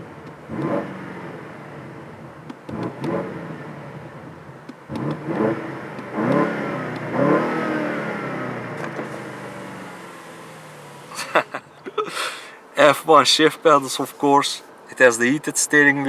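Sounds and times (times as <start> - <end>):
car engine revving and idling: 0.0 - 11.8.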